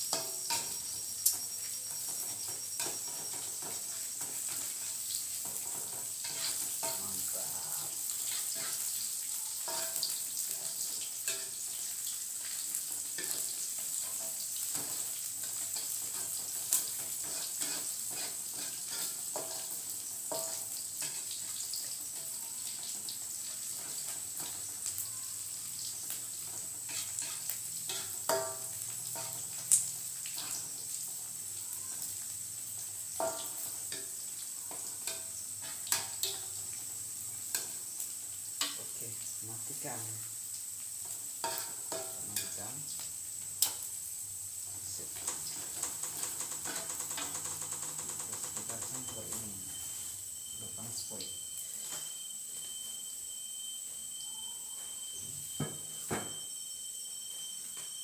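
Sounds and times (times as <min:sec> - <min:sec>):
spatula clinking against pan: 0:00.0 - 0:04.8, 0:09.6 - 0:10.6, 0:11.2 - 0:11.7, 0:13.1 - 0:21.5, 0:26.8 - 0:29.6, 0:33.2 - 0:36.6, 0:41.4 - 0:42.6
metal spatula scraping wok: 0:00.0 - 0:25.0, 0:25.7 - 0:38.0, 0:41.0 - 0:42.8
food sizzling in oil: 0:00.0 - 0:58.0.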